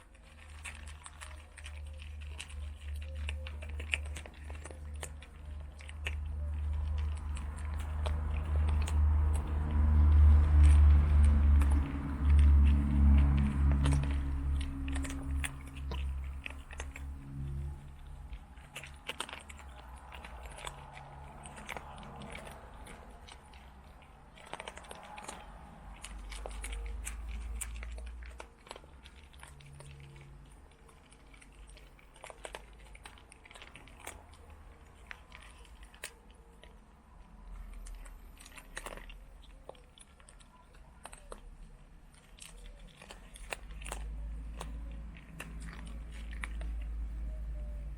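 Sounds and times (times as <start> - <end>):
cats crunching dry food: 0.0 - 47.9.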